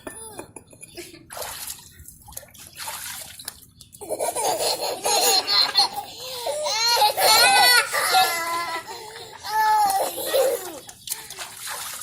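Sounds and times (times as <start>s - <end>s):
baby laughing: 0.0s - 1.2s, 4.0s - 10.9s.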